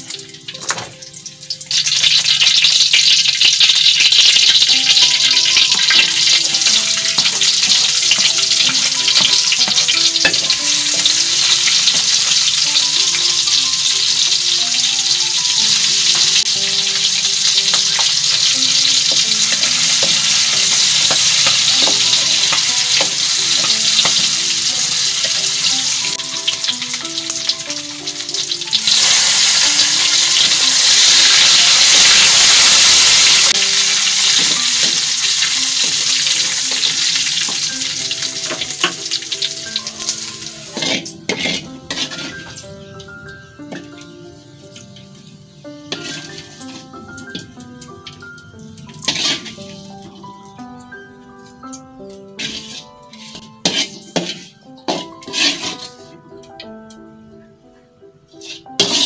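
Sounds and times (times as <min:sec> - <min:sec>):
hot oil sizzling in wok: 0:00.0 - 0:50.6, 0:51.4 - 0:56.5, 0:58.3 - 0:59.0
soft single-note melody: 0:21.9 - 0:29.8, 0:41.7 - 0:49.1, 0:56.0 - 0:58.3.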